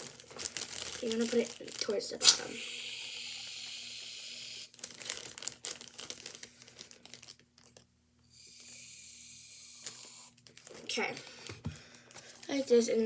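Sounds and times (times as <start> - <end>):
plastic bag crinkling: 0.0 - 2.6, 4.7 - 7.9, 9.8 - 13.0
aerosol can hissing: 2.2 - 4.7.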